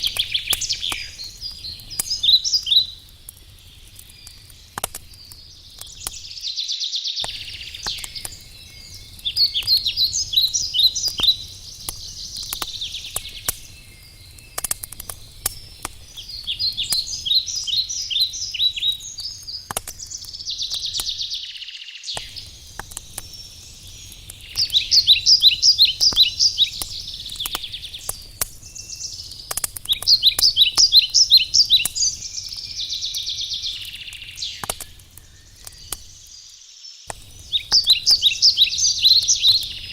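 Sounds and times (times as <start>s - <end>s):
songbird trilling: 0.0s - 3.0s, 5.8s - 14.6s, 16.2s - 22.5s, 23.9s - 29.3s, 29.9s - 36.0s, 37.5s - 39.9s
campfire crackling and popping: 0.0s - 6.6s, 7.2s - 21.5s, 22.1s - 39.9s.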